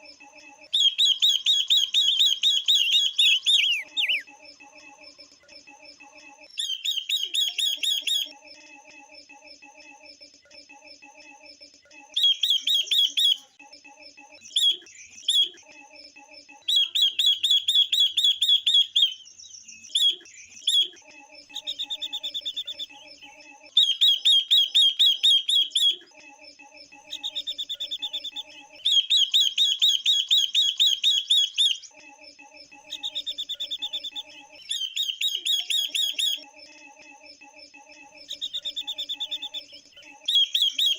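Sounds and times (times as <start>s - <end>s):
lower repeated bird notes: 0.7s - 4.3s, 6.6s - 8.3s, 12.2s - 13.5s, 16.7s - 23.1s, 23.8s - 26.0s, 27.0s - 31.9s, 32.7s - 36.4s, 38.1s - 40.9s
high chattering bird trills: 0.8s - 4.2s, 6.6s - 8.3s, 12.2s - 13.5s, 16.7s - 19.2s, 19.9s - 23.0s, 23.8s - 26.0s, 27.0s - 31.8s, 32.8s - 36.4s, 38.3s - 40.9s.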